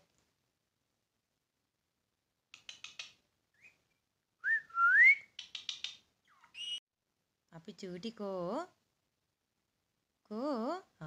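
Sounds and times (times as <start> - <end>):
quick chirpy calls: 2.6 - 3.8, 5.3 - 6.8
loud wavering whistle: 4.4 - 5.2.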